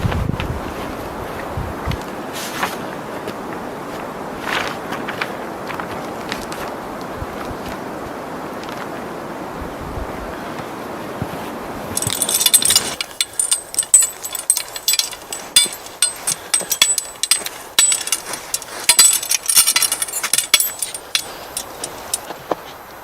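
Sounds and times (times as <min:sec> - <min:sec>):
sharp clicks and clinks: 0:12.0 - 0:22.3.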